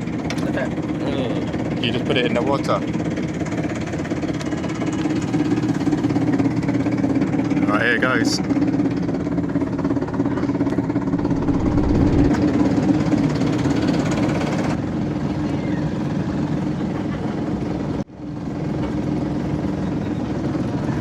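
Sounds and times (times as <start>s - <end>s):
boat engine humming: 0.0s - 14.8s.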